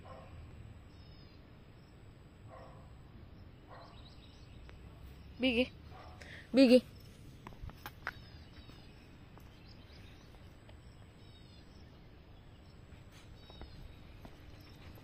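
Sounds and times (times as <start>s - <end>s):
faint bird chirps: 8.0s - 15.0s.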